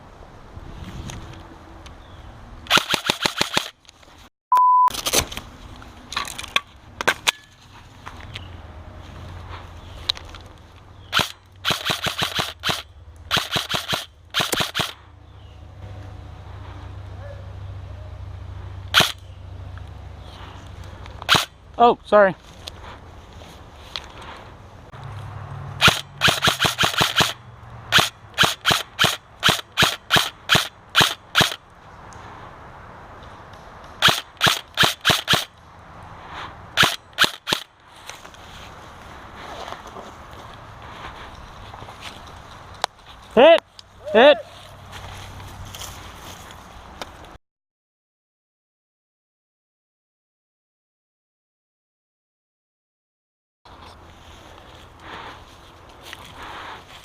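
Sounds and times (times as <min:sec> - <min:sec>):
airsoft guns firing: 0:02.7 - 0:03.7, 0:11.1 - 0:15.0, 0:25.8 - 0:31.6, 0:34.0 - 0:35.5
loud steady beep: 0:04.5 - 0:04.9.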